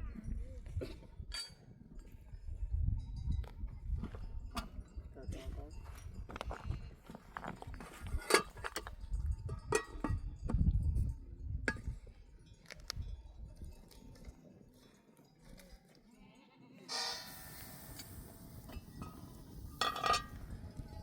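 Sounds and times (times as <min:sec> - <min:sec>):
sheep bleating: 0:16.1 - 0:17.3.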